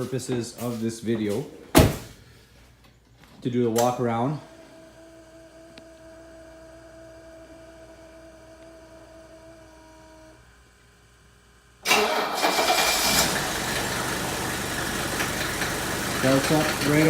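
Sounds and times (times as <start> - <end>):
faint steady hum: 0.1 - 11.9
diesel engine cranking and idling: 11.8 - 17.0.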